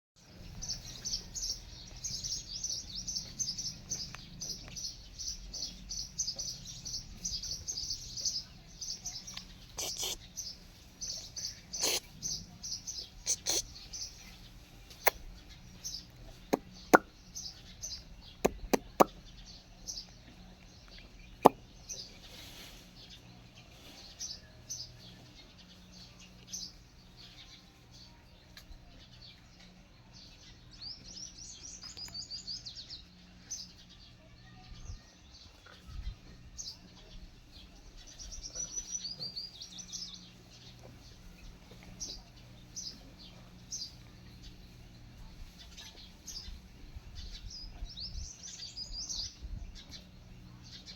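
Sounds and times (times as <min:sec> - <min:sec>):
small birds chirping: 0:00.2 - 0:50.9
rapid bird trilling: 0:09.8 - 0:10.3, 0:11.7 - 0:12.1, 0:13.2 - 0:13.7.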